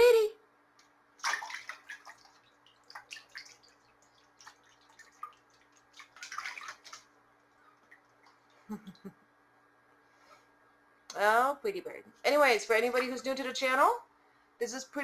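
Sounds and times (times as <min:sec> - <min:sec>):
water drips: 0:00.8 - 0:08.6
goose splashing in water: 0:01.2 - 0:07.1.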